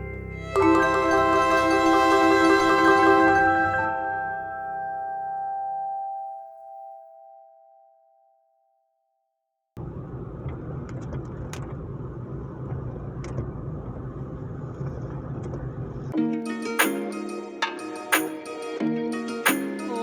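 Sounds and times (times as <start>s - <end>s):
mallet instrument note: 0.0s - 8.2s, 16.2s - 18.6s
car engine and road rumble: 9.8s - 16.2s.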